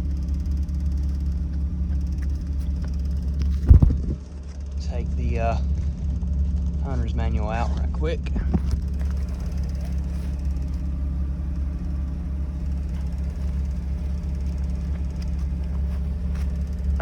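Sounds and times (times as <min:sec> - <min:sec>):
rotary engine idling: 0:00.0 - 0:17.0.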